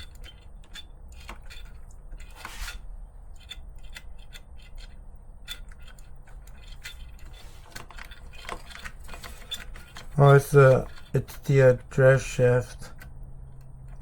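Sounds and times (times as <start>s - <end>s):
short rasp: 2.2s - 2.8s.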